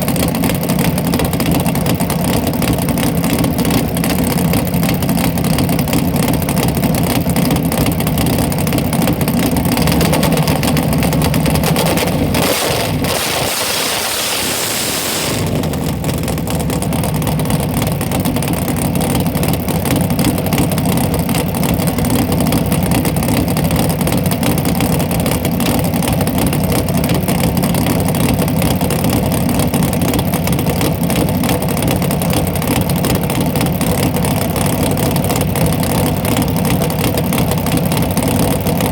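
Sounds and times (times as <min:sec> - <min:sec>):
drag car engine idling: 0:00.0 - 0:38.9
loud hiss: 0:10.1 - 0:16.3.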